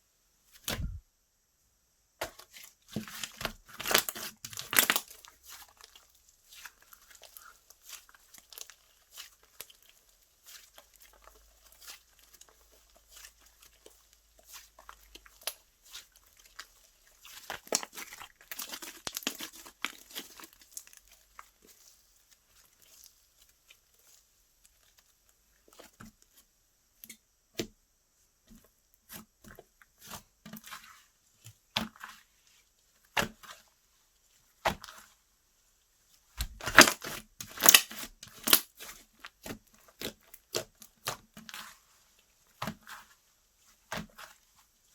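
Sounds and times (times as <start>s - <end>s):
slime crackling and popping: 3.1s - 25.0s, 36.4s - 41.7s.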